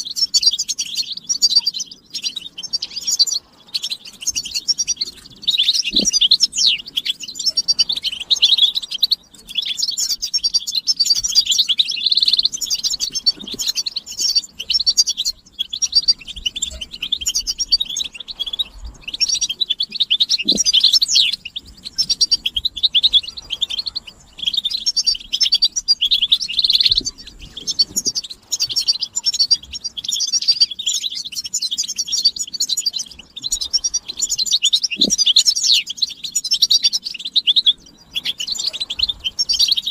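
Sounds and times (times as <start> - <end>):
finches twittering: 0.0 - 39.9.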